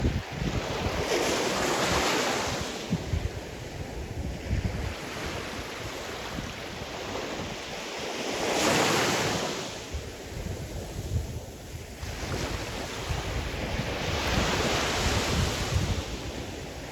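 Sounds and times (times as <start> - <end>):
sea waves washing onto shore: 0.0 - 16.9
wind buffeting microphone: 0.0 - 16.9.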